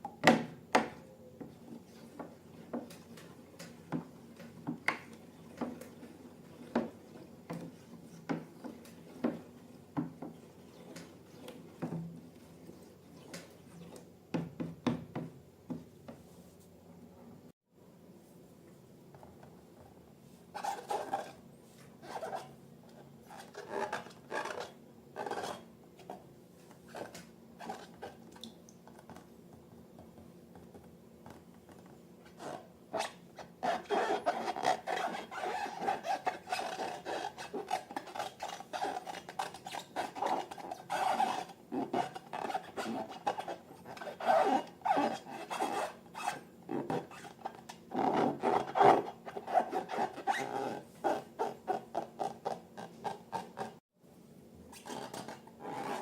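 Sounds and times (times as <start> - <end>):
slime rubbing and scraping: 32.4 - 53.8.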